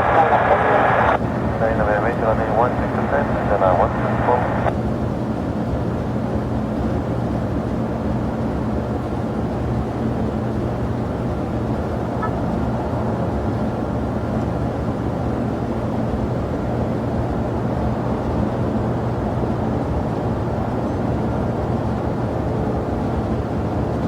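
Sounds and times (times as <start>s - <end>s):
jet engines rumbling: 0.0s - 4.8s, 10.2s - 24.0s.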